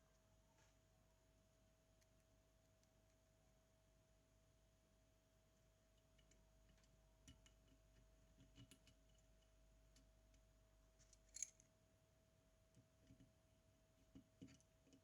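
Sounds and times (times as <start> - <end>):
faint steady hum: 0.0 - 15.0
small metal tools clicking: 11.0 - 11.6.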